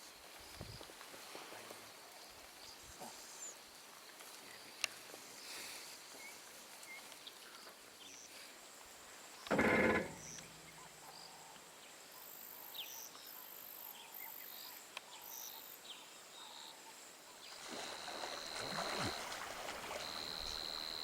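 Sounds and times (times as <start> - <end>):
high insect whine: 17.6 - 21.0
insect buzzing: 17.6 - 21.0.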